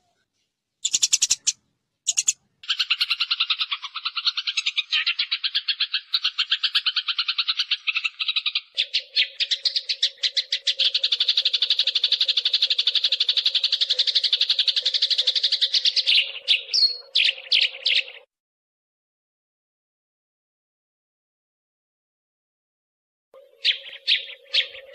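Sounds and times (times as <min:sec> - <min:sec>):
sparrows chattering: 0:00.8 - 0:18.3, 0:23.4 - 0:24.9.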